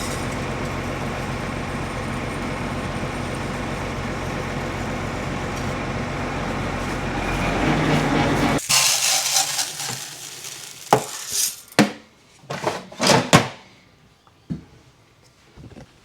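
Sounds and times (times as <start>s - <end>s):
vehicle road noise: 0.0s - 8.6s.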